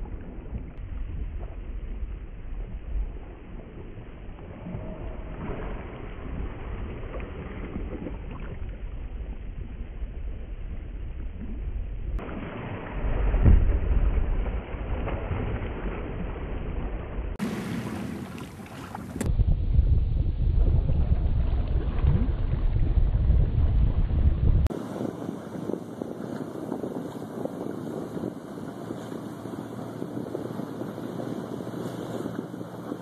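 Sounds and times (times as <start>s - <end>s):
water washing around a boat: 12.2s - 19.3s, 24.7s - 33.0s
wind buffeting microphone: 17.3s - 33.0s.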